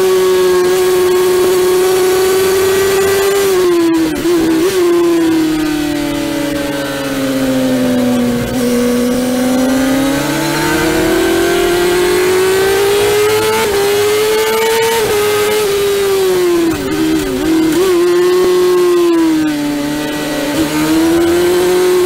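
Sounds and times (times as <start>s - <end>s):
motorcycle engine revving: 0.0s - 22.0s
wind rush: 9.9s - 14.0s.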